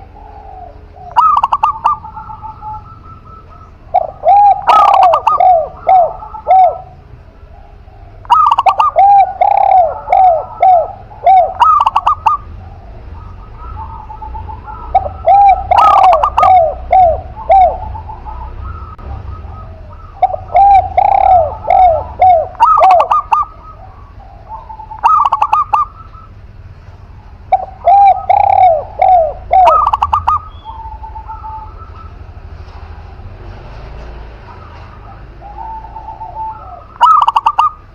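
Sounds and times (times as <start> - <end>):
doves cooing: 0.0 - 37.9.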